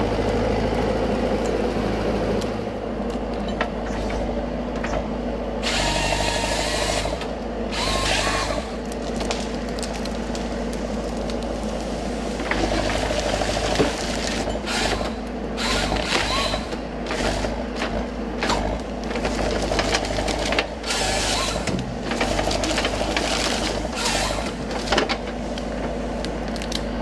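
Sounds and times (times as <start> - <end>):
harvester engine running: 0.0 - 27.0
bursts of mechanical noise: 5.6 - 9.4, 12.4 - 25.0.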